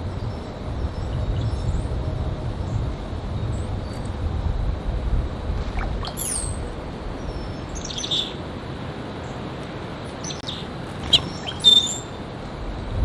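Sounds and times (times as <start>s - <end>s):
finches chirping: 5.6s - 8.4s, 10.1s - 12.2s.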